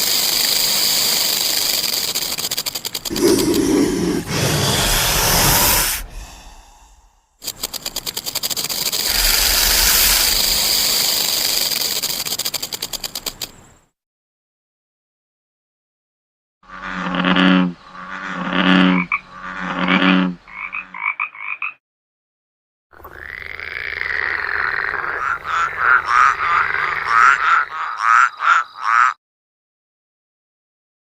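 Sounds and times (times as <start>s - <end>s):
animal calls: 3.0s - 7.1s, 9.0s - 11.2s.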